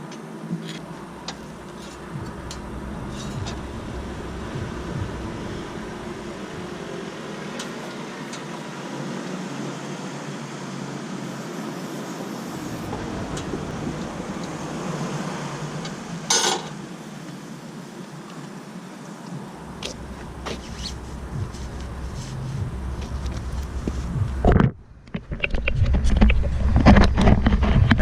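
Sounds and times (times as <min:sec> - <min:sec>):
steady background hiss: 0:00.0 - 0:24.6
loud metal clank: 0:16.2 - 0:16.8.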